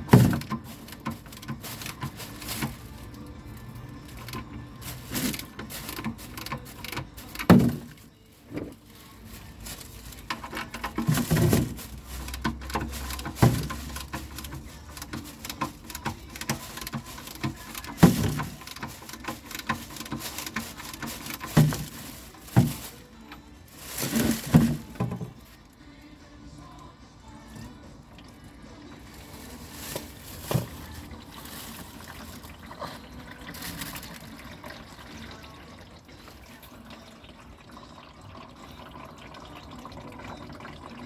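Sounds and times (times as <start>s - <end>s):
hand tools clicking and clattering: 0.0s - 23.1s.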